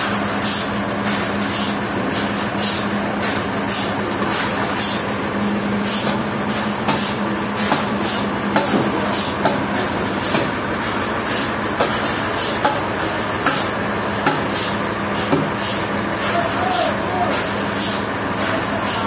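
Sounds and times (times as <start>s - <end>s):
sawmill sawing log: 5.8s - 19.0s.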